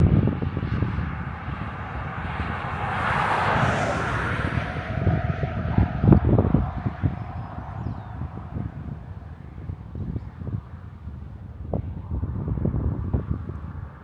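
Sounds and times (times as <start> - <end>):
car engine running: 0.0 - 10.4
low rumble: 0.0 - 14.0.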